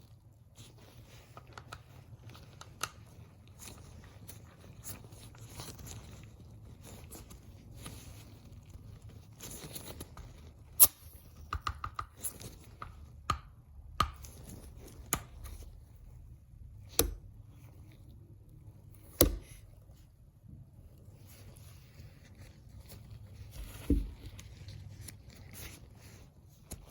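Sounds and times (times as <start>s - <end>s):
rustling: 0.0s - 10.8s, 17.4s - 26.9s.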